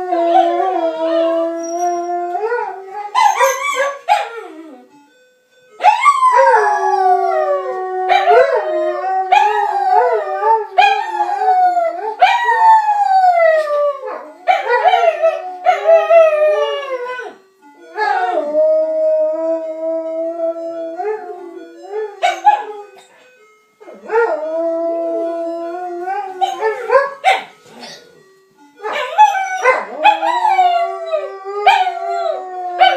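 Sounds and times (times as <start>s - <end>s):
ice cream van jingle: 2.4s - 32.9s
dogs howling: 5.8s - 23.0s, 23.9s - 27.2s, 28.8s - 32.9s.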